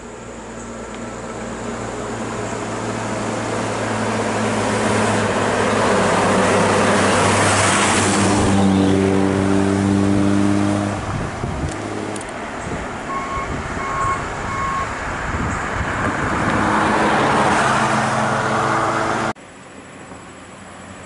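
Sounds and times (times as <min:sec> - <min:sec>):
pitched engine drone: 0:00.0 - 0:21.0
tyres rushing on road: 0:00.0 - 0:21.0
heavy vehicle passing: 0:01.1 - 0:19.4.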